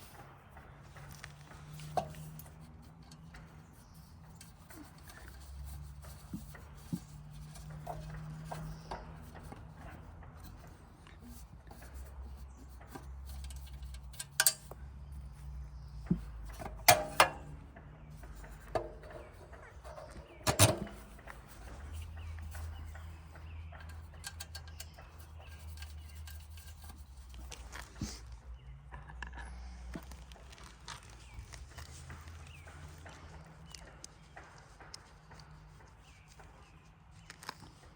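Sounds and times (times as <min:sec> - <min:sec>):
metallic knocks and clanks: 0:00.2 - 0:27.4.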